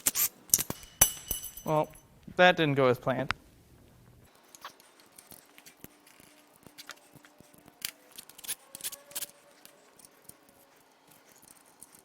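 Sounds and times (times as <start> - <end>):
metallic clinks of hand tools: 0.2 - 2.0.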